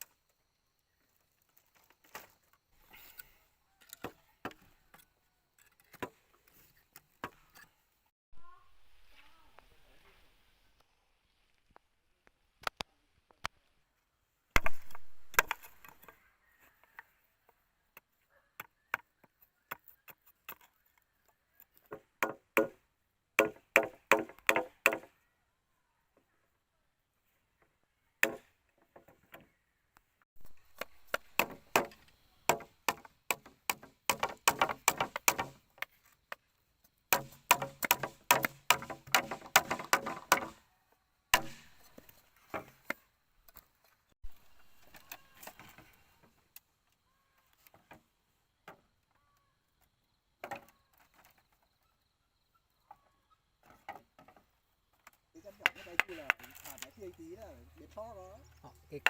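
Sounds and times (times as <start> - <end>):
blade chopping bamboo: 23.4 - 25.1, 30.7 - 35.7, 37.1 - 40.6, 41.4 - 42.8.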